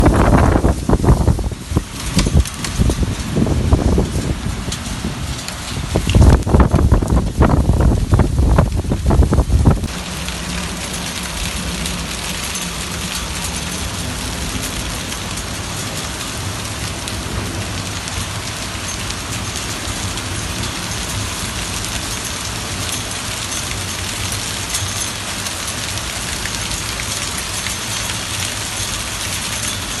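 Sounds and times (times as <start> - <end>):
wind buffeting microphone: 0.0 - 24.6
heavy rain on surfaces: 0.0 - 30.0.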